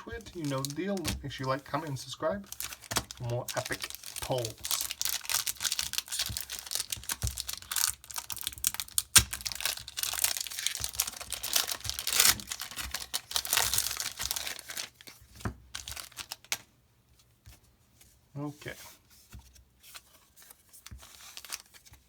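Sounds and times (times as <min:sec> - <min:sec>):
foil wrapper tearing and crumpling: 0:00.0 - 0:15.1, 0:15.8 - 0:16.6.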